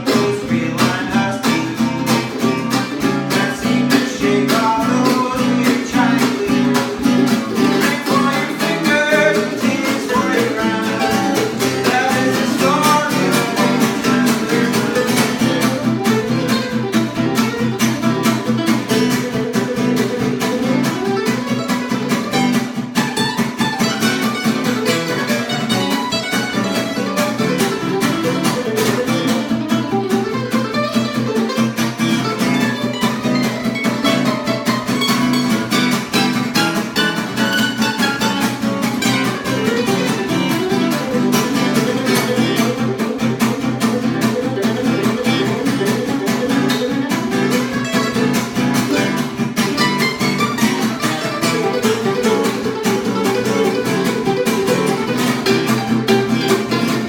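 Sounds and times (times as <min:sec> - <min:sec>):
picked guitar melody: 0:00.0 - 0:57.0
strummed guitar rhythm: 0:00.0 - 0:57.0.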